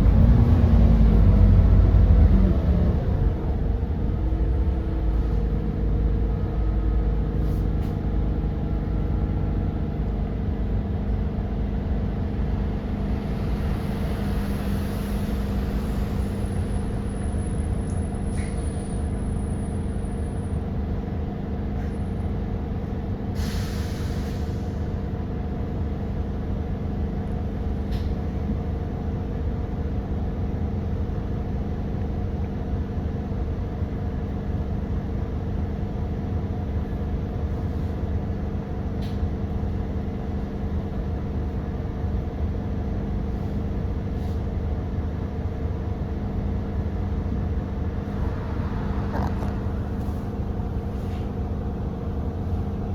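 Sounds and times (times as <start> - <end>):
bus engine drone: 0.0 - 52.9
hiss of air: 23.4 - 24.8.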